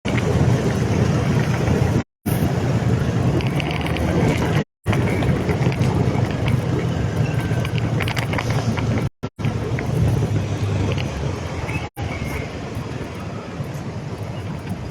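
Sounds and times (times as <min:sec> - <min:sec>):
motorcycle engine running: 0:00.1 - 0:12.9.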